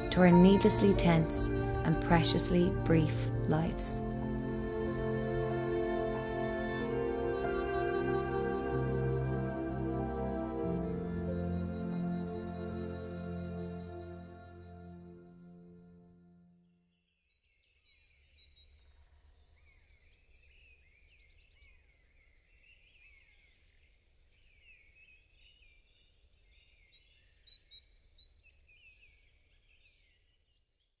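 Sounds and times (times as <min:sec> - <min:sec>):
background music: 0:00.0 - 0:16.4.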